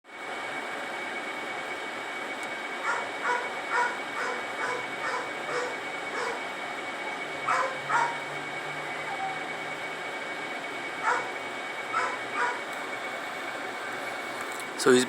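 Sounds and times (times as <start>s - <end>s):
dog barking: 2.8s - 6.4s, 7.4s - 8.2s, 11.0s - 12.6s.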